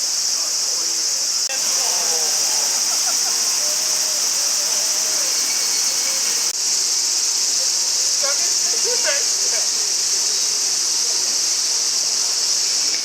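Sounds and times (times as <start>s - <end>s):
faint voices: 0.0s - 6.6s
insects trilling: 0.0s - 13.0s.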